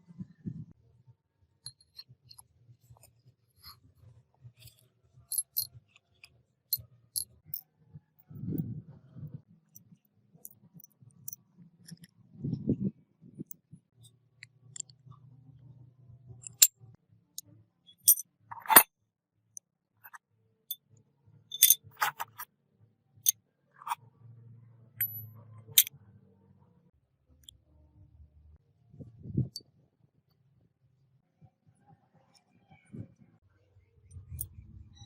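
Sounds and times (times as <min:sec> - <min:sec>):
small metal parts clinking: 0:04.6 - 0:06.3, 0:16.4 - 0:16.7, 0:18.0 - 0:18.9, 0:21.5 - 0:22.4, 0:25.0 - 0:25.2.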